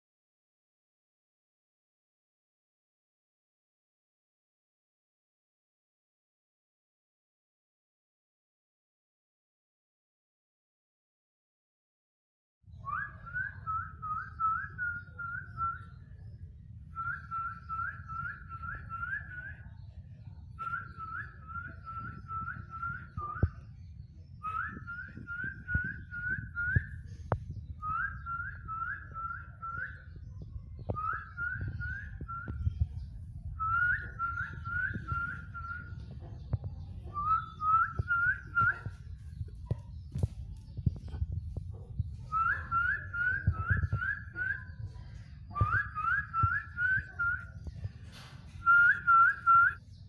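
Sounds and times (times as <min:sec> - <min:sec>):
low rumble: 0:19.9 - 0:37.2.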